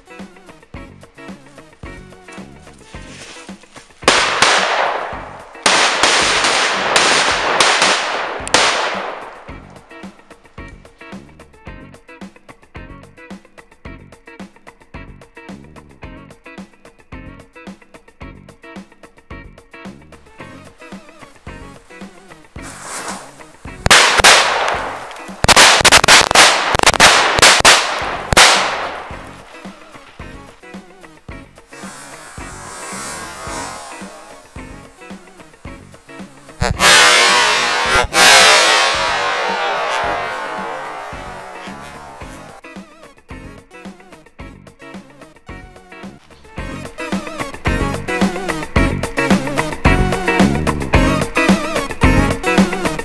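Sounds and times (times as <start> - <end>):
background music: 0.0 - 53.0
firecracker bangs: 4.0 - 9.8, 22.6 - 30.1, 31.8 - 35.1, 36.6 - 42.6
crackling hiss: 20.2 - 40.0.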